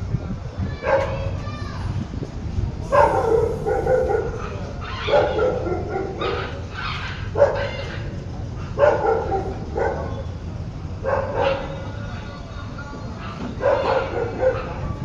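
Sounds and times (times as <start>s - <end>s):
steady low hum: 2.0s - 4.9s
dog barking and yelping: 2.8s - 8.0s, 11.0s - 11.8s, 13.2s - 14.8s.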